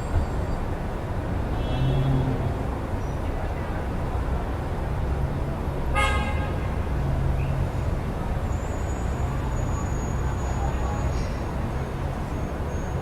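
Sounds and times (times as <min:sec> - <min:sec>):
road traffic rumble: 0:00.0 - 0:13.0
car horn toot: 0:01.6 - 0:02.3, 0:06.0 - 0:06.7.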